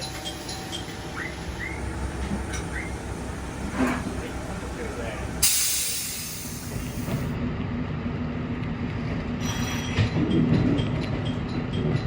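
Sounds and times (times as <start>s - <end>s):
loud hiss: 0.0s - 7.3s
train low hum: 0.0s - 12.0s.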